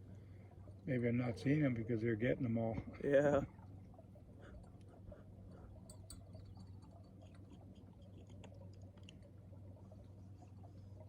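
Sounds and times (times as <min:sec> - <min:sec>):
faint low hum: 0:00.0 - 0:11.0
faint small clicks: 0:05.9 - 0:09.3.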